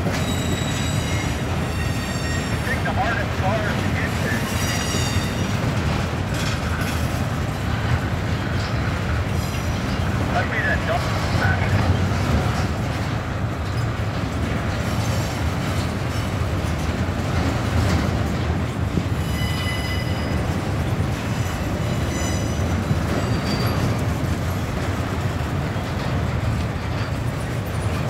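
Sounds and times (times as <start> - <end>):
train wheels rumbling on rail: 0.0 - 28.0
high-pitched wheel squeals: 0.2 - 2.6, 19.2 - 20.4, 21.8 - 22.6.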